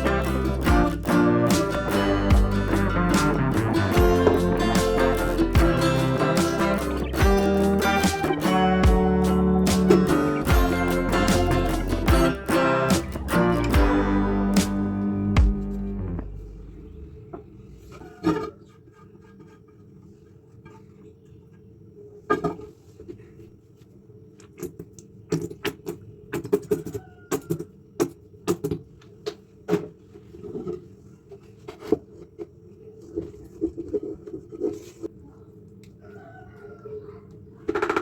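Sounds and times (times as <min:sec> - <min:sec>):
steady low hum: 0:00.0 - 0:18.1.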